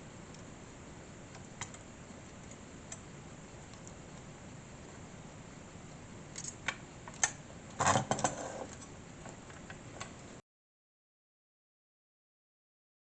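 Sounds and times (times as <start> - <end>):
light clicks of small parts: 1.3 - 4.3, 6.3 - 7.4.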